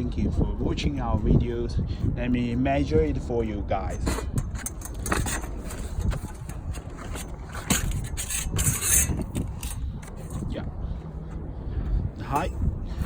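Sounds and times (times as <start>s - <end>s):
scraping rasps: 4.0s - 10.5s.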